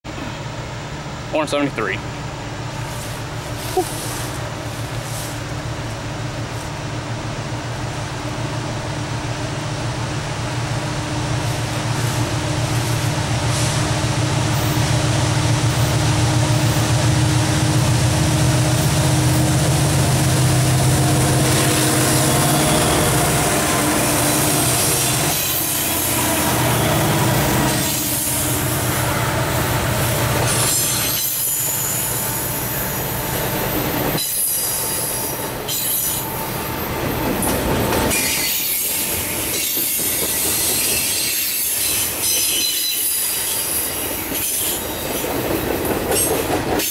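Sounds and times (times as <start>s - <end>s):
diesel locomotive engines droning: 0.1s - 46.9s
train wheels squealing: 24.4s - 28.5s, 30.5s - 45.3s
train wheels clacking: 37.0s - 46.9s.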